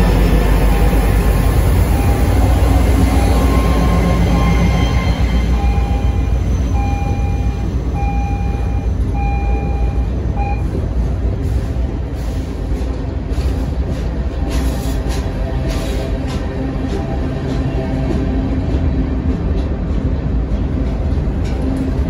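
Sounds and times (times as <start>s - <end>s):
diesel locomotive rumbling: 0.0s - 22.0s
high tone: 2.0s - 10.6s.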